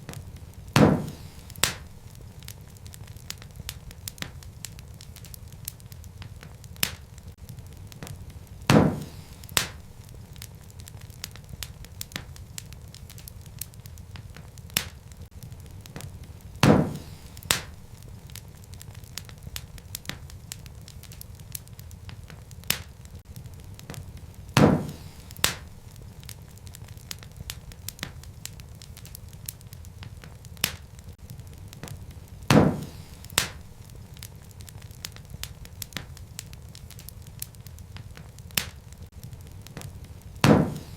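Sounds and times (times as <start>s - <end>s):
wood fire crackling: 0.0s - 40.9s
loud sharp pops: 0.1s - 7.3s, 8.0s - 10.0s, 15.9s - 18.0s, 23.8s - 25.8s, 31.8s - 38.8s, 39.7s - 40.9s.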